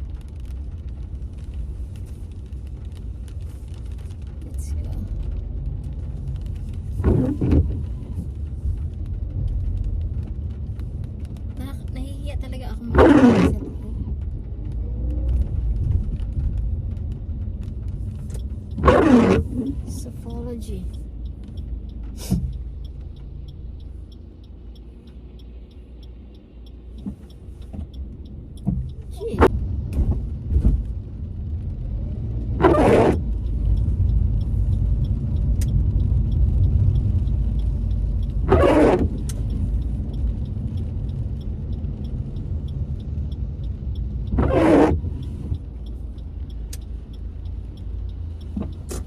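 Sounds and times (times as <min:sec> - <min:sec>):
car engine and road rumble: 0:00.0 - 0:49.0
faint rapid ticking: 0:19.7 - 0:29.3, 0:45.0 - 0:49.0.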